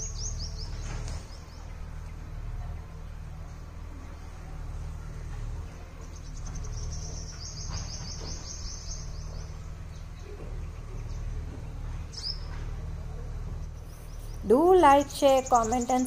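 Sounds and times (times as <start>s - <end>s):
small bird twittering trill: 0.0s - 2.2s, 6.0s - 10.3s, 12.1s - 12.6s, 13.7s - 16.0s.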